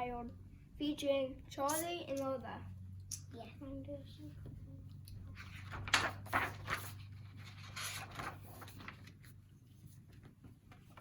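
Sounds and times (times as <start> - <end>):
low room hum: 0.0 - 11.0
paper pages rustling: 5.3 - 11.0.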